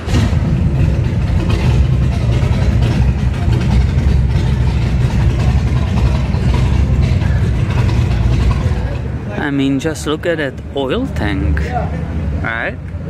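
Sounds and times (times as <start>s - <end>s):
motorcycle engine idling: 0.0s - 10.1s.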